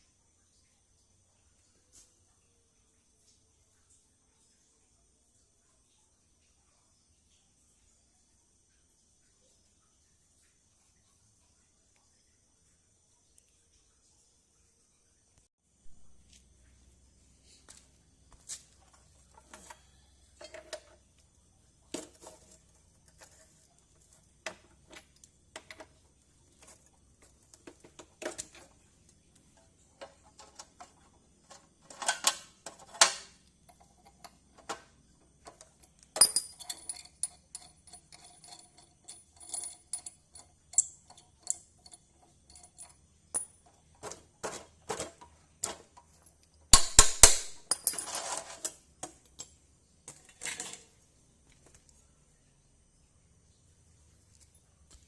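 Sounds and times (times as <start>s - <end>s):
metal tools clinking and knocking: 18.8s - 21.1s, 21.9s - 28.8s, 29.5s - 51.0s.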